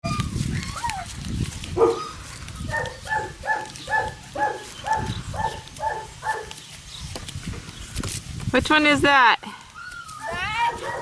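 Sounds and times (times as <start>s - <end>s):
puppy yipping: 0.0s - 1.1s, 2.7s - 6.6s, 9.8s - 11.0s
puppy whining: 0.0s - 1.2s, 9.8s - 11.0s.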